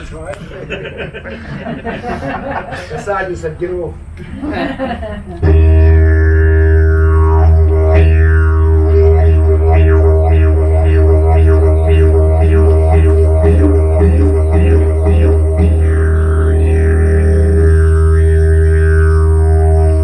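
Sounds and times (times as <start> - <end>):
didgeridoo drone: 5.4 - 20.0.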